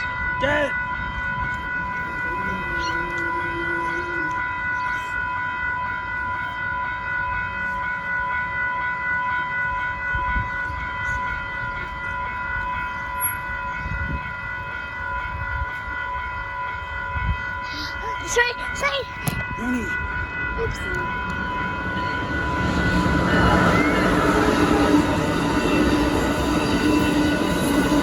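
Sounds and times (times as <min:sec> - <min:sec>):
steady high tone: 0:00.0 - 0:28.0
train wheels rumbling on rail: 0:09.6 - 0:28.0.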